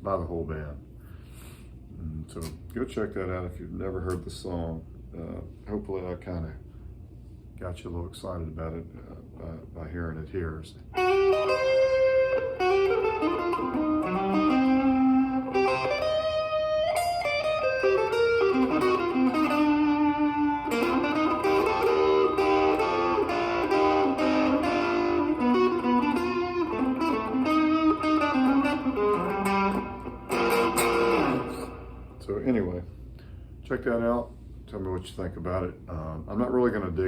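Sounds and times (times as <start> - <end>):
electric guitar jazz-rock riff: 10.9 - 32.7.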